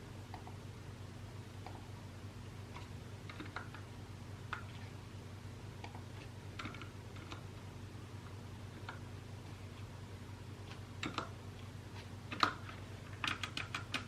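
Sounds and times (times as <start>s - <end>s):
steady low hum: 0.0s - 14.0s
mechanical keyboard typing: 2.8s - 3.8s, 6.6s - 7.4s, 11.0s - 11.3s, 12.3s - 14.0s.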